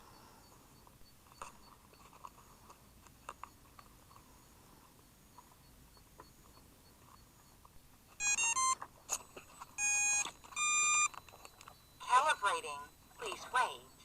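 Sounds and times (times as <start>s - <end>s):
long steady beeps: 0.0s - 14.0s
stepping electronic tones: 5.3s - 14.0s.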